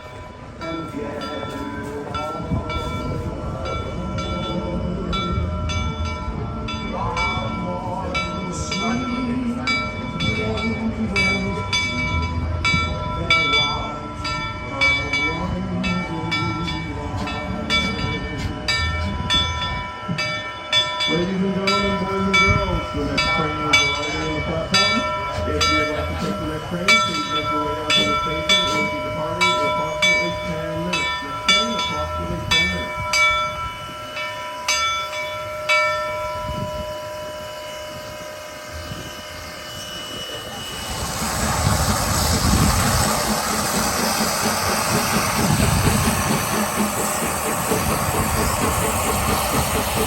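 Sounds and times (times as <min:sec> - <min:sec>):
railroad bell ringing: 0:00.0 - 0:50.0.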